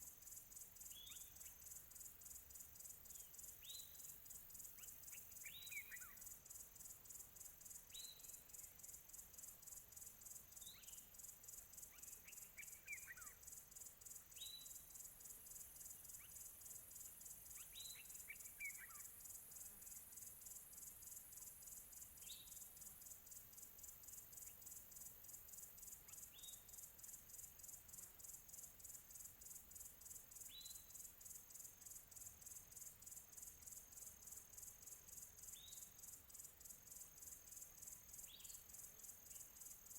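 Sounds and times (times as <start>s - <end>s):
insect chorus pulsing: 0.2s - 39.9s.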